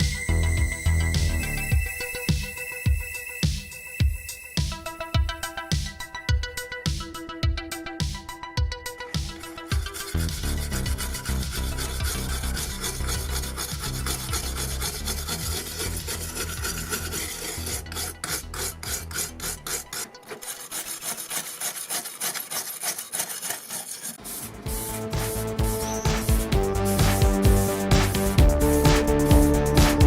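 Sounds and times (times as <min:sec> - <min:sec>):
hand sanding scraping: 0:09.0 - 0:30.0.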